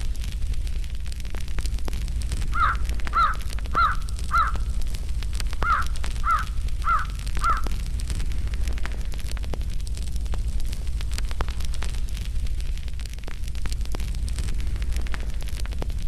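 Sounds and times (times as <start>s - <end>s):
fire low rumble: 0.0s - 16.0s
fireplace crackling: 0.0s - 16.0s
crow cawing: 2.5s - 4.7s, 5.6s - 7.7s.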